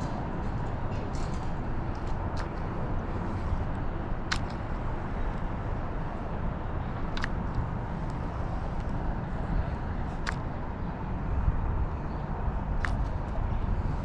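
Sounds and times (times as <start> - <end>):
sharp clicks: 4.3 - 4.6, 7.2 - 7.4.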